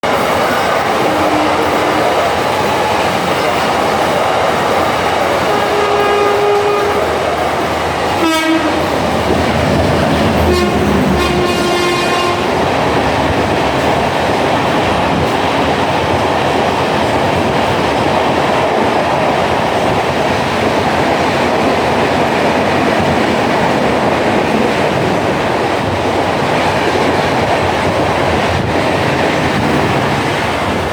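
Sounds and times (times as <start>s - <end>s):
train running on rails: 0.0s - 30.9s
train horn blasts: 1.0s - 2.3s, 5.4s - 12.8s.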